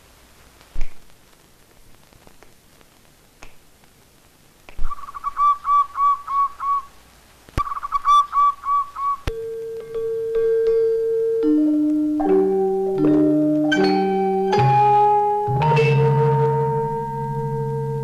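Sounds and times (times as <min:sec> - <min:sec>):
songbird whistling: 0:04.8 - 0:07.0, 0:07.6 - 0:09.4
mallet instrument note: 0:09.3 - 0:18.0.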